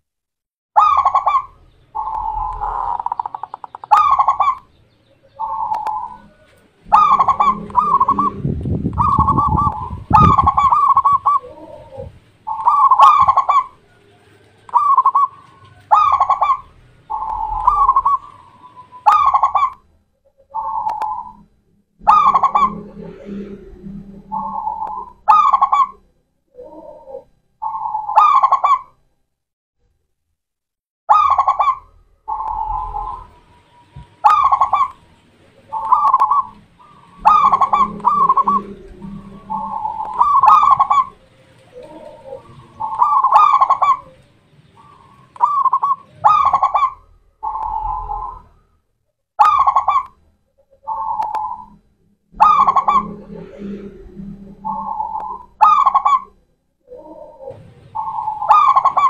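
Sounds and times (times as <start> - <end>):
dove cooing in trilled coos: 0.8 - 19.8, 20.4 - 28.9, 31.1 - 48.6, 49.4 - 51.8, 52.4 - 59.0.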